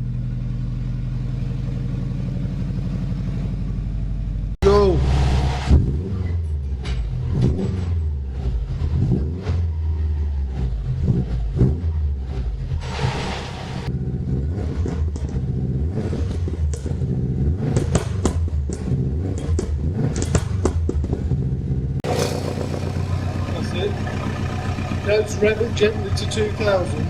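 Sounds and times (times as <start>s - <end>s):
car engine idling: 0.0s - 27.0s
exhaust pops: 17.6s - 21.4s, 22.0s - 27.0s.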